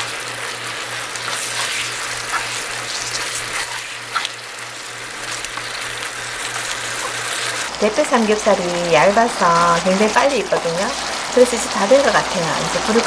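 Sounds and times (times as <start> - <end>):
pork sizzling in a pan: 0.0 - 13.0
spatula scraping a pan: 1.2 - 4.4.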